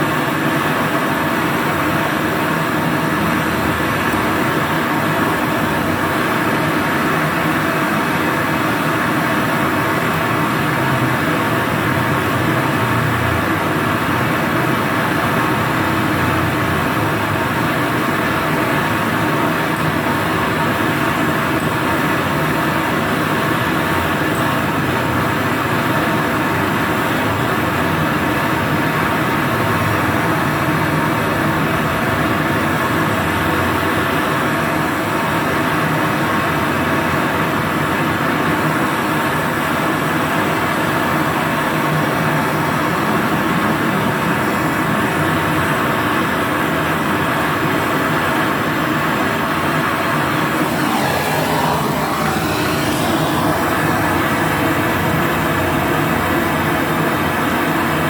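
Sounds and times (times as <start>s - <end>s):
torch flame rushing: 50.0s - 56.2s.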